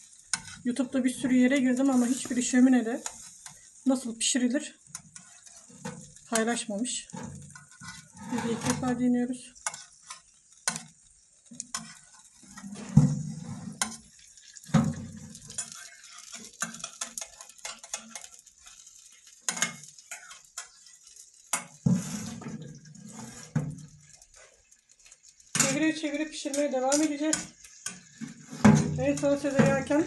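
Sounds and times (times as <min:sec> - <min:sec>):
meat sizzling in oil: 0:00.0 - 0:30.0
utensil scraping metal tray: 0:00.3 - 0:03.6, 0:04.9 - 0:10.9, 0:11.5 - 0:14.1, 0:21.5 - 0:23.8, 0:25.6 - 0:30.0.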